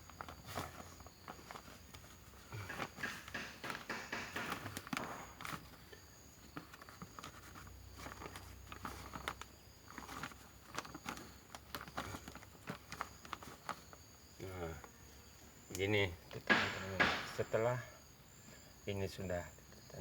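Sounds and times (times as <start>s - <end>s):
hands packing soil in pot: 0.0s - 14.9s.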